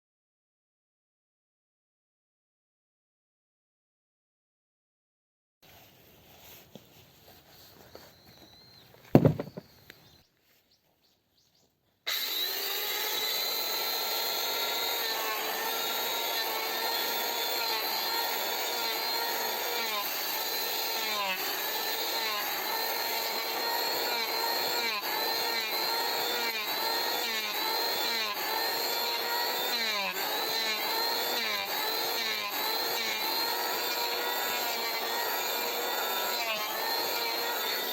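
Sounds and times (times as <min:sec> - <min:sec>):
chainsaw cutting wood: 0:07.9 - 0:10.2, 0:12.1 - 0:37.9
knock: 0:09.2 - 0:09.6.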